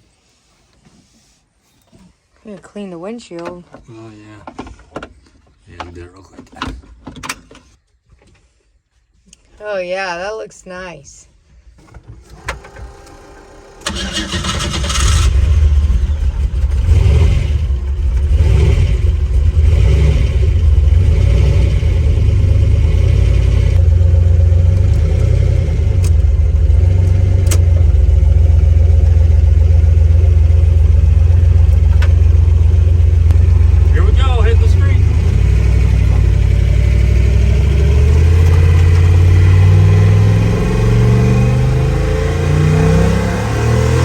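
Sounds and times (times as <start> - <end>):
truck engine starting: 12.1 - 44.0
engine deep rumble: 13.9 - 44.0.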